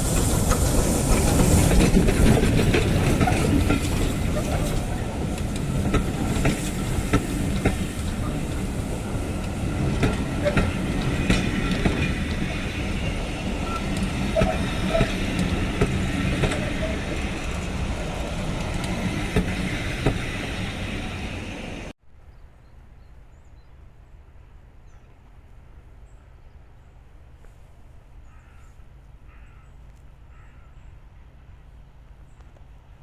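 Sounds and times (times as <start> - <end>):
train rumbling on tracks: 0.0 - 22.0.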